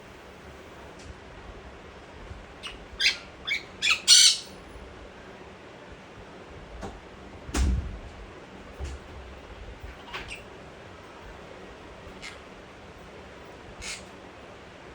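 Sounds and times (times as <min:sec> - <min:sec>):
parrot squawking: 0:02.6 - 0:04.6, 0:12.1 - 0:12.5, 0:13.8 - 0:14.1.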